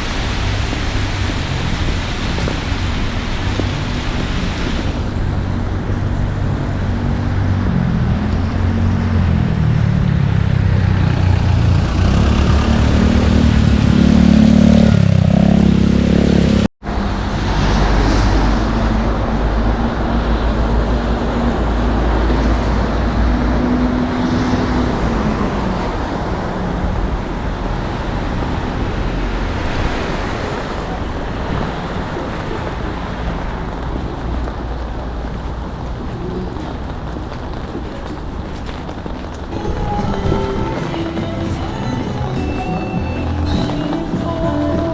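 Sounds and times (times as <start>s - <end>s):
road traffic hum: 0.0s - 44.9s
vehicle passing rising in pitch: 3.7s - 33.2s.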